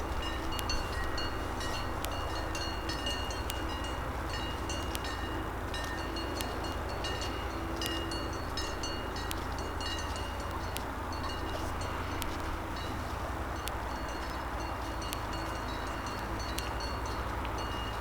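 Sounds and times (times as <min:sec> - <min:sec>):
steady low rumble: 0:00.0 - 0:18.0
cowbells clanking: 0:00.1 - 0:12.0, 0:13.9 - 0:18.0.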